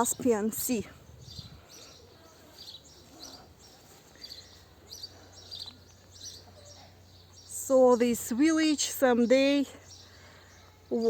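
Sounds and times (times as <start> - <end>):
small bird chirping: 0.0 - 8.0.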